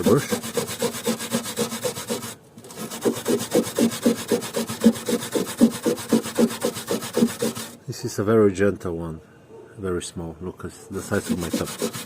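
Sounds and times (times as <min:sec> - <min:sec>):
wire brush scrubbing metal: 0:00.0 - 0:07.8, 0:11.0 - 0:12.0.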